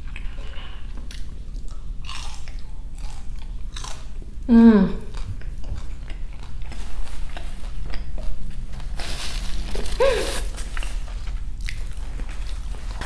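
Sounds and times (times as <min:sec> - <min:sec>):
person chewing with lips closed: 0:00.0 - 0:08.7
person humming mm: 0:04.5 - 0:05.1.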